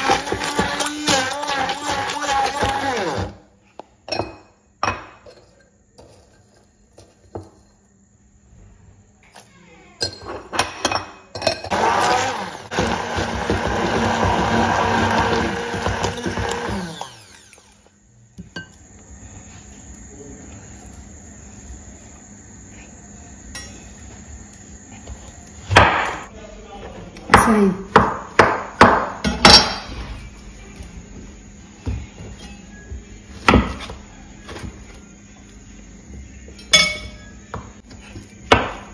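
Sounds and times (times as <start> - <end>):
immersion blender grinding: 0.0 - 3.4, 11.7 - 17.8
spoon clinking against glass bowl: 36.6 - 37.3.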